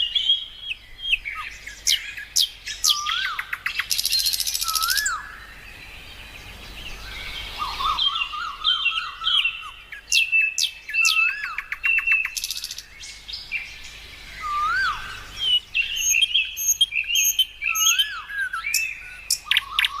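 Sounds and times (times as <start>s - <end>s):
birds chirping and calling: 0.0s - 20.0s
rising and falling bird whistle: 1.3s - 5.4s, 7.0s - 12.8s, 14.4s - 20.0s.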